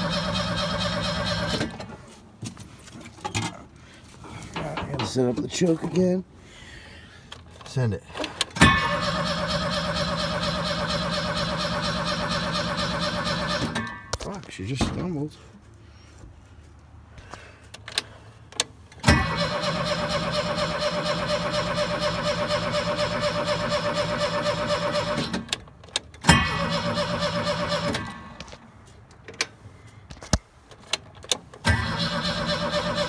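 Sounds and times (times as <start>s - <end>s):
engine starter cranking: 0.0s - 2.0s, 8.2s - 14.1s, 19.0s - 28.5s, 31.3s - 33.0s.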